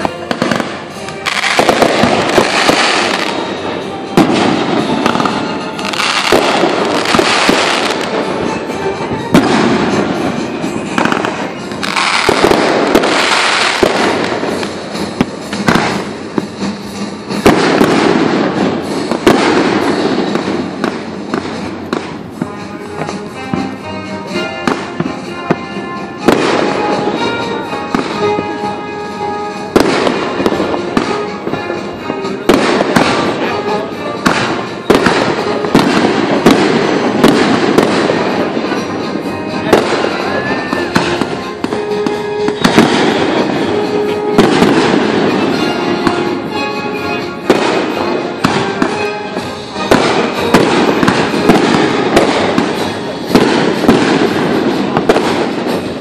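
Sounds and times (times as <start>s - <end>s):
fireworks crackling: 0.0s - 56.0s.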